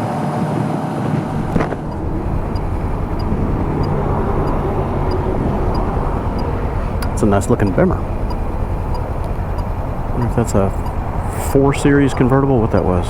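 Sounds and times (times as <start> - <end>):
wind rushing over microphone: 0.0 - 13.0
motorcycle engine running: 1.2 - 13.0
faint regular ticks: 1.3 - 13.0.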